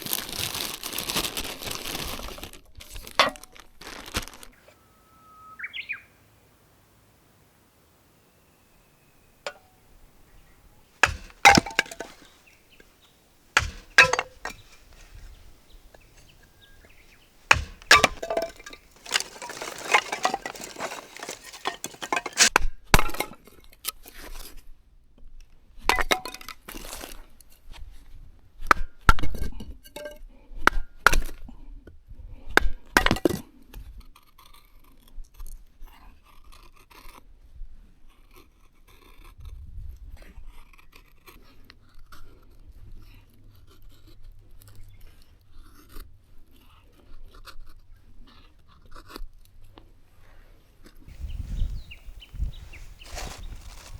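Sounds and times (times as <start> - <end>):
hard objects clinking: 9.5 - 9.7, 11.0 - 12.5, 13.6 - 15.2, 17.5 - 22.5
rustling and scraping: 11.0 - 22.5, 51.1 - 53.9.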